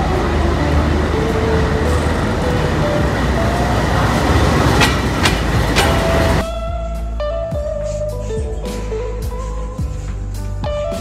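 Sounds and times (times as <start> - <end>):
train rumbling on track: 0.0 - 6.5
sharp clacks of train wheels: 3.9 - 6.4.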